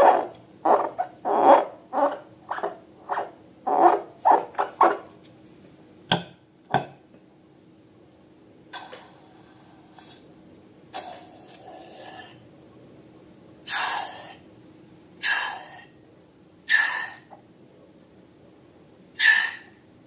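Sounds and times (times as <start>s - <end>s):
air hissing out of balloon: 16.7s - 17.3s, 19.2s - 19.8s.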